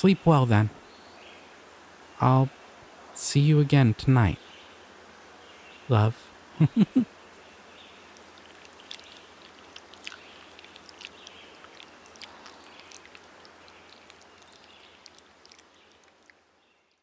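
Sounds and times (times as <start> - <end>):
low steady hiss: 0.0 - 17.0
small ticks: 8.1 - 17.0.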